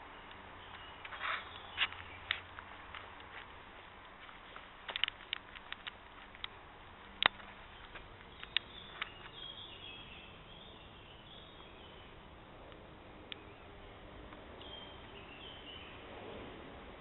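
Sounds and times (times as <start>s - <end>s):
faint woodland background: 0.0s - 17.0s
high bird chirps: 7.6s - 12.2s, 14.6s - 16.1s.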